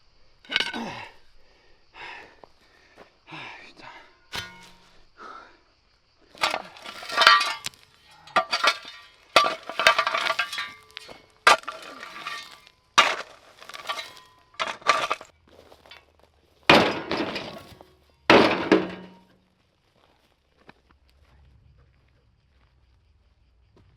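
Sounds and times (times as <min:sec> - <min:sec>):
brittle objects crashing and clinking: 0:04.4 - 0:04.8, 0:06.4 - 0:16.0, 0:16.7 - 0:19.3.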